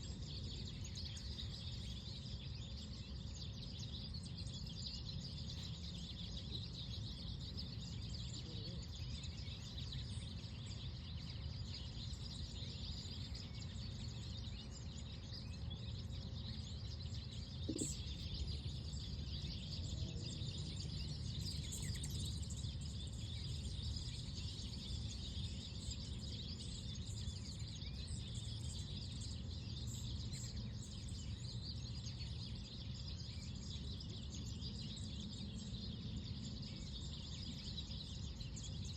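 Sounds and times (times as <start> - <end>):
distant birds chirping: 17.6 - 19.0.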